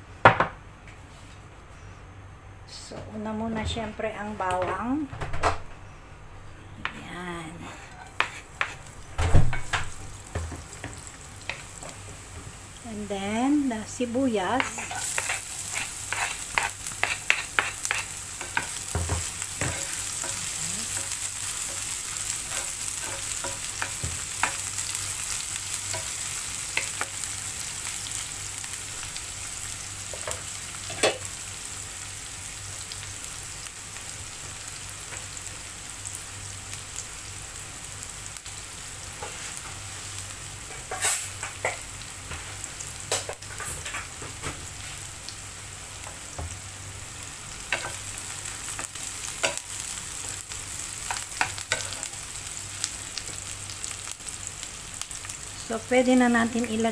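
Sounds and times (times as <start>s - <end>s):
onion and garlic sizzling in oil: 6.8s - 56.9s.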